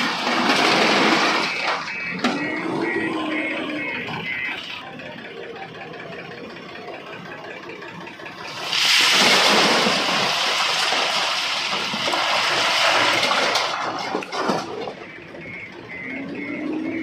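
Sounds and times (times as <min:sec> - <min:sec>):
machine engine running: 0:00.1 - 0:13.6
loud rushing pouring noise: 0:08.5 - 0:13.8.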